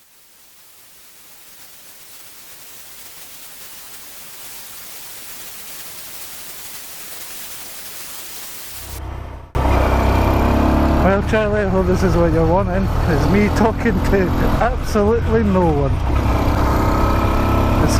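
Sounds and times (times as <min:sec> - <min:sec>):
static-like hiss: 0:00.0 - 0:09.0.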